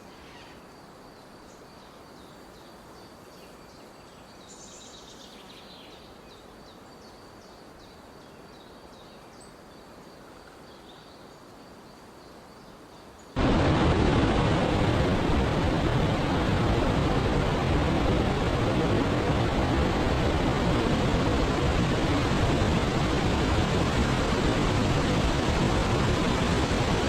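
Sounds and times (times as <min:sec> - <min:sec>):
steady hiss: 0:06.0 - 0:27.0.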